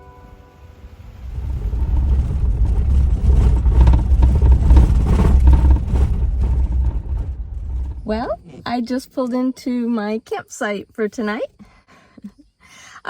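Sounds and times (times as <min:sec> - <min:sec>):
vehicle engine and road noise: 0:00.6 - 0:08.6.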